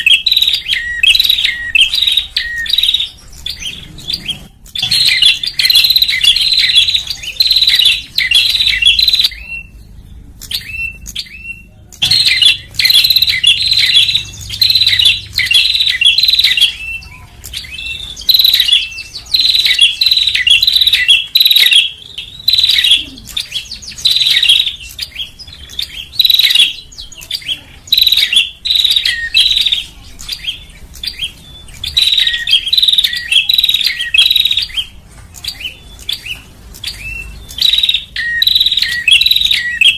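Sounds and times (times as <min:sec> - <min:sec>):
bird chattering calls: 0:00.0 - 0:39.9.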